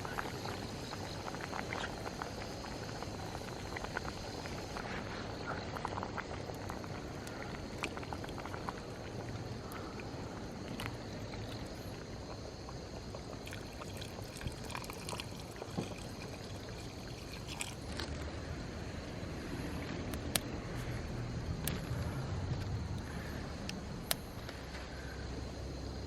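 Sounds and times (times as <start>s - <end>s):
campfire crackling and popping: 0.0s - 18.3s.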